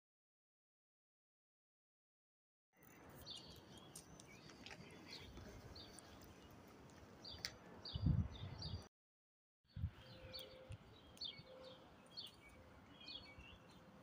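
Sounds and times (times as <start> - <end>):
small birds chirping: 2.8 - 8.9, 9.7 - 14.0
street background noise: 2.8 - 8.9, 9.7 - 14.0.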